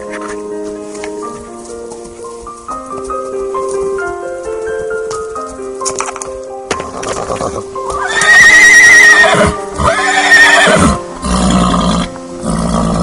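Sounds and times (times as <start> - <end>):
background music: 0.0 - 13.0
horse whinnying: 6.8 - 13.0.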